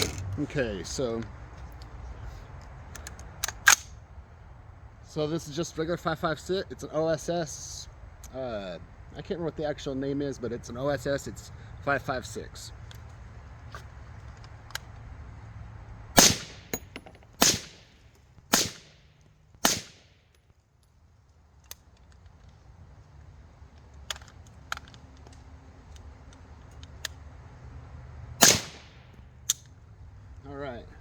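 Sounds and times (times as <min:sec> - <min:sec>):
suppressed rifle shots: 0:16.2 - 0:20.1, 0:28.4 - 0:29.2.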